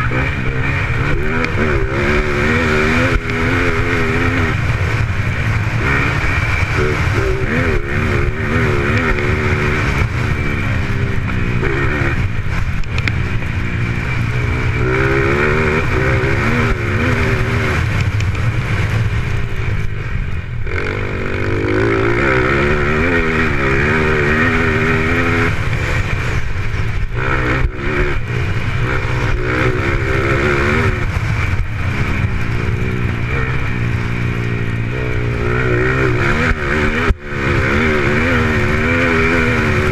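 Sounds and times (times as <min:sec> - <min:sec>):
racing motorcycle engines revving: 0:00.0 - 0:39.9.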